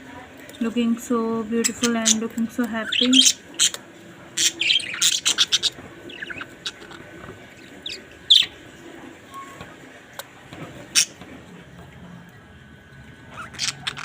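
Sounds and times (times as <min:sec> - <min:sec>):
parrots chirping and squawking: 0:01.6 - 0:09.7, 0:10.6 - 0:11.4, 0:13.2 - 0:14.0.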